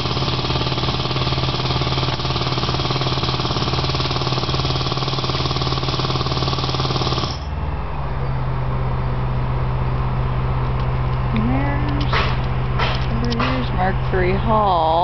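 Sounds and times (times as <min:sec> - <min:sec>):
jackhammer breaking concrete: 0:00.0 - 0:07.5
steady low hum: 0:00.0 - 0:15.0.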